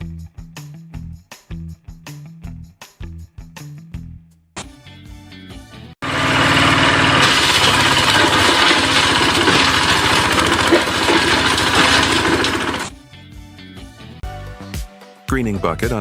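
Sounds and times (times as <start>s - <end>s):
machinery engine running: 6.0s - 12.9s.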